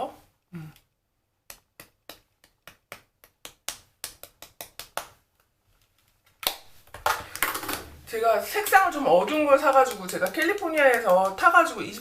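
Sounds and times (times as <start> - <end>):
puff patting skin: 1.4 - 5.2, 8.7 - 12.0.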